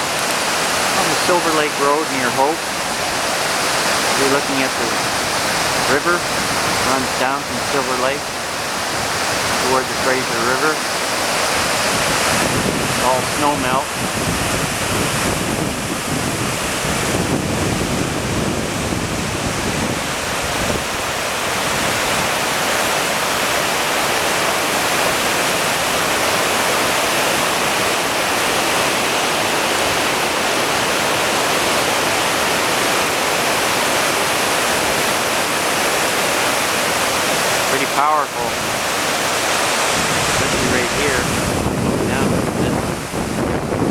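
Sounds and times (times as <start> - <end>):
river rushing: 0.0 - 43.9.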